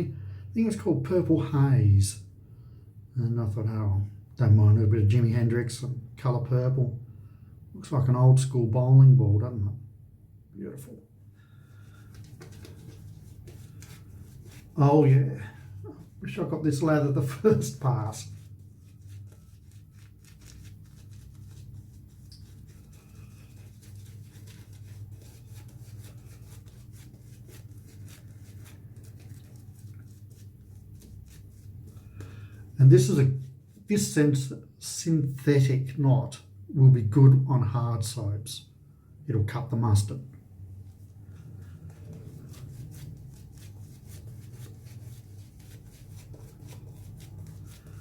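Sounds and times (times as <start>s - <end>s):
shaving brush wet crackling: 11.9s - 32.3s, 41.3s - 48.0s.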